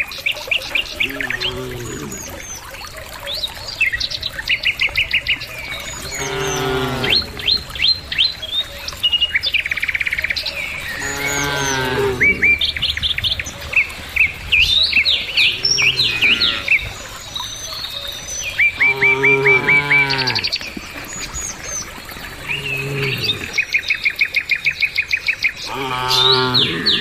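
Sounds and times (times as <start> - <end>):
birds chirping: 0.0 - 27.0
cattle mooing: 6.0 - 7.4, 11.0 - 12.6, 15.6 - 16.8, 18.8 - 20.5, 22.5 - 23.6, 25.7 - 27.0.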